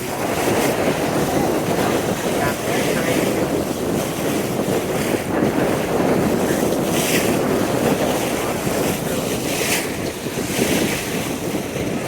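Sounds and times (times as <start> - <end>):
water rushing past boat hull: 0.0 - 12.0
wind buffeting microphone: 0.0 - 12.0.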